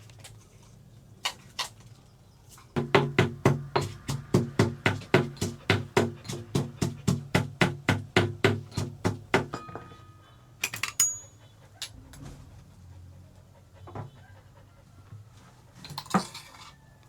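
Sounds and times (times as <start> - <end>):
rhythmic knocking: 2.8 - 9.6
short clink: 9.6 - 11.3.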